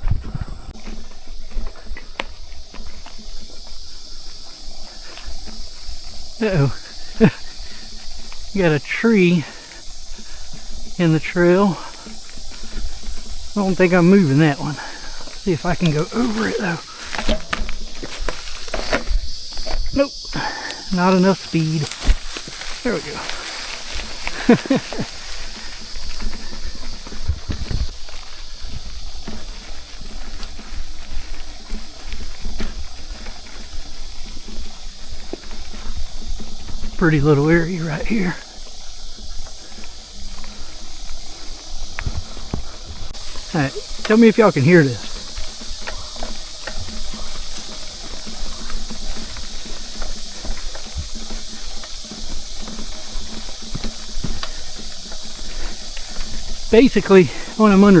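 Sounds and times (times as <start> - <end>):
wind on microphone: 0.0 - 1.6, 16.0 - 33.1
bike clicks and rattles: 0.0 - 58.0
bike tyres rolling on sand: 0.0 - 58.0
steady high hiss: 0.0 - 58.0
wind: 0.0 - 58.0
man talking: 6.4 - 7.3, 8.5 - 9.7, 11.0 - 11.9, 13.5 - 16.9, 19.9 - 22.1, 22.7 - 23.6, 37.0 - 38.4, 43.5 - 45.1, 56.7 - 58.0.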